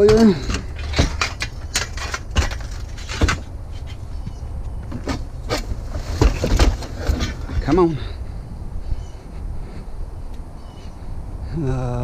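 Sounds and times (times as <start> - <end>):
scrap metal knocks and clanks: 0.0 - 7.9.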